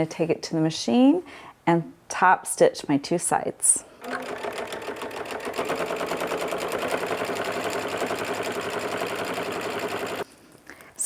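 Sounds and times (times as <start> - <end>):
sewing machine running: 4.0 - 10.3.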